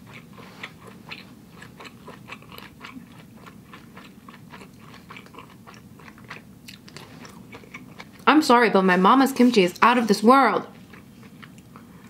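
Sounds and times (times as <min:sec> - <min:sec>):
person chewing with crunches: 0:00.0 - 0:08.3, 0:10.7 - 0:12.0.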